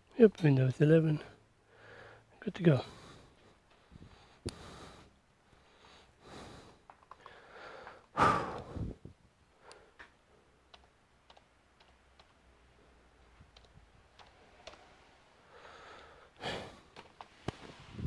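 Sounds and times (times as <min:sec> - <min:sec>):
computer mouse and keyboard clicks: 0:06.8 - 0:08.1, 0:09.7 - 0:12.5, 0:13.4 - 0:15.0, 0:16.9 - 0:17.6.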